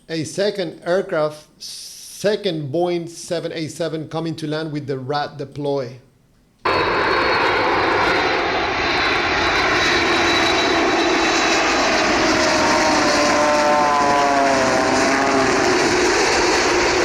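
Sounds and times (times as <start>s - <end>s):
airplane passing overhead: 6.7s - 17.0s.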